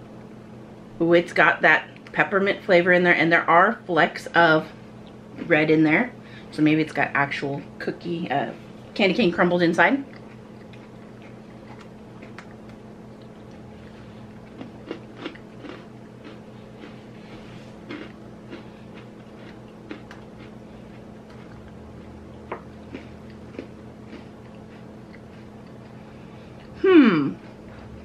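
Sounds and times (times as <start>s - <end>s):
cookie crunches: 10.1s - 26.0s.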